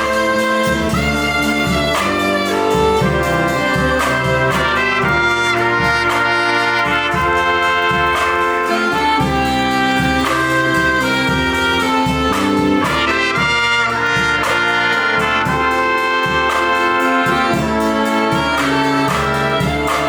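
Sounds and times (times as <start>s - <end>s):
brass band playing: 0.0s - 20.0s
light percussion beat: 0.0s - 20.0s.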